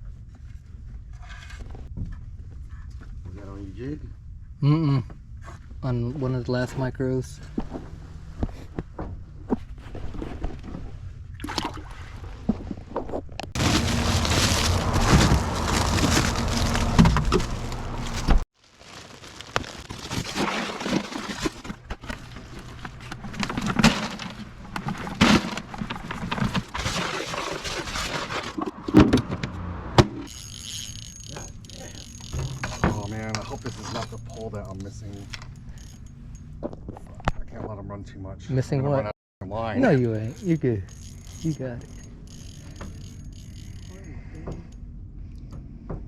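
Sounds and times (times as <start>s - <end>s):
water sloshing and splashing: 11.3s - 18.4s, 20.0s - 29.1s.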